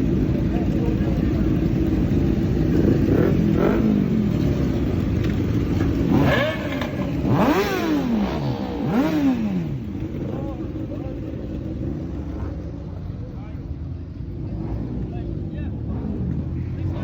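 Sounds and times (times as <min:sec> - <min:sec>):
vehicle engines rumbling: 0:00.0 - 0:17.0
engine revving: 0:02.5 - 0:12.5.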